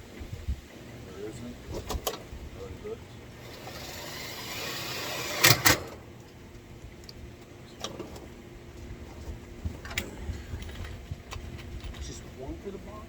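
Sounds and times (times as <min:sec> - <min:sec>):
power drill driving screw: 0:03.4 - 0:06.0.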